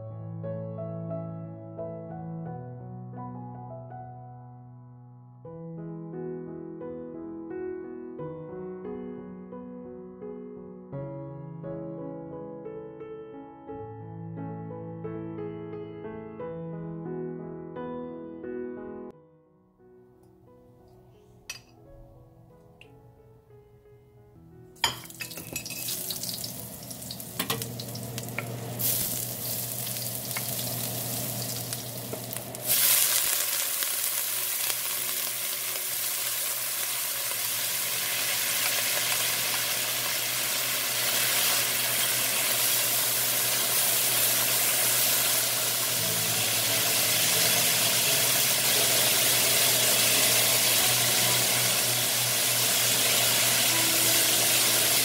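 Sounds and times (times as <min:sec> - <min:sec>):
vegetables sizzling in oil: 0:24.8 - 0:55.0.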